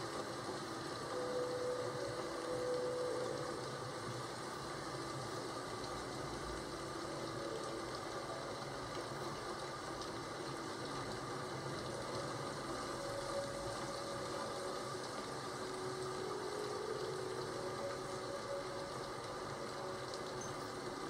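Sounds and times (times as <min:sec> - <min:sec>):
rain hissing: 0:00.0 - 0:21.0.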